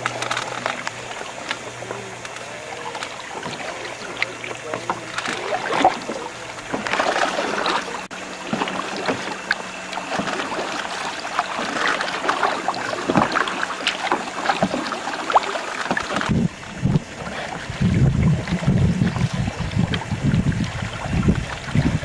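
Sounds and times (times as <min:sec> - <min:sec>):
water splashing around a canoe: 0:00.0 - 0:22.0
wind rumbling on microphone: 0:16.0 - 0:22.0.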